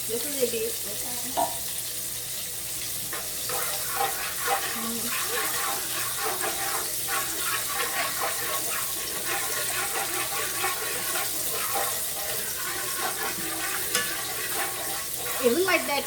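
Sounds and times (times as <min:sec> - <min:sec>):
chicken sizzling in a pan: 0:00.0 - 0:16.0.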